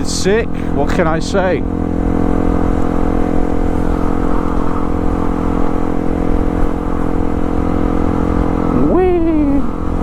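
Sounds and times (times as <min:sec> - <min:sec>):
motorcycle engine cruising: 0:00.0 - 0:10.0
wind rumble on microphone: 0:00.0 - 0:10.0.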